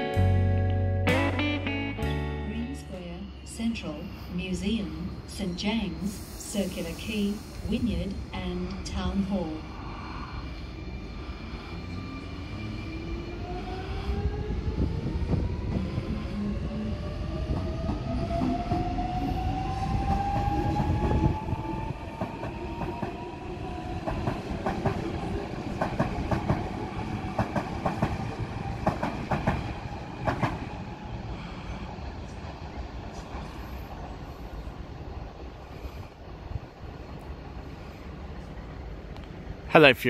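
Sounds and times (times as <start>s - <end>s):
train wheels clicking on track: 13.6s - 23.3s, 23.9s - 32.5s.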